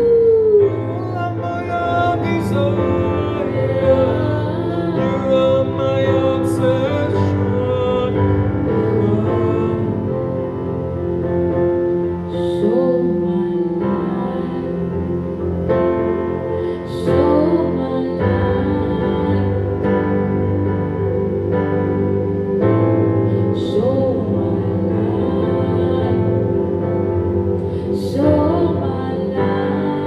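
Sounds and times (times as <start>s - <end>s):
piano chords: 0.0s - 30.0s
bowed strings: 1.0s - 12.9s.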